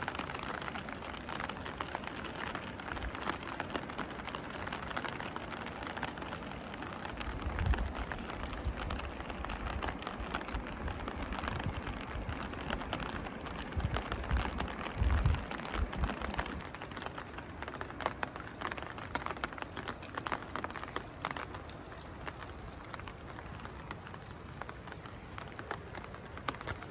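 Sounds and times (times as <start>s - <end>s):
rain ticking on hard surfaces: 0.0s - 26.9s.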